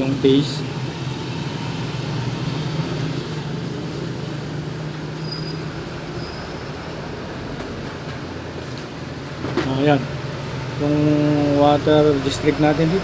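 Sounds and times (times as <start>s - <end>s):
faint high whistles: 5.2s - 6.6s.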